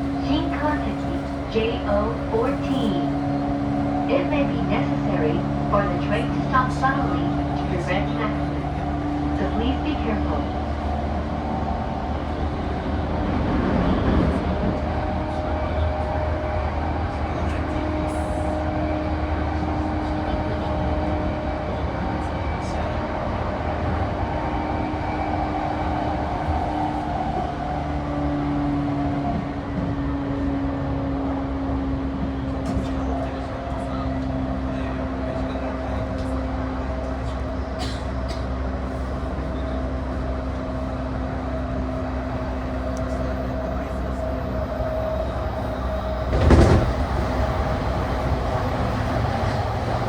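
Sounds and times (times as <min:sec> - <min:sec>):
train motor and gear hum: 0:00.0 - 0:50.0
wheel and rail rumble: 0:00.0 - 0:50.0.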